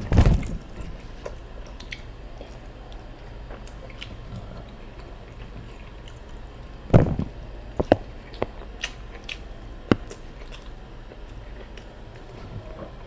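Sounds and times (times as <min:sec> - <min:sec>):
heavy thump: 0:00.0 - 0:00.9, 0:06.9 - 0:07.9
chewing: 0:00.7 - 0:06.4, 0:07.8 - 0:13.0.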